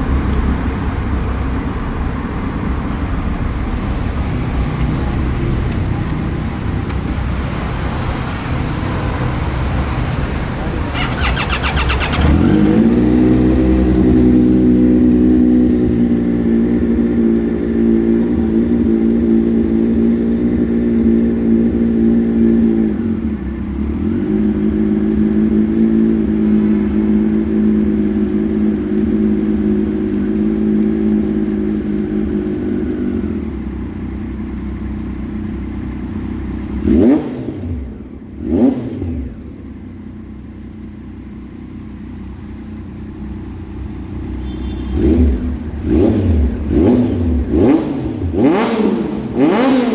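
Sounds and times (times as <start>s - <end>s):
motorcycle engine revving: 7.4s - 40.2s, 44.4s - 49.9s
motorcycle engine idling: 10.2s - 37.2s, 37.8s - 48.4s.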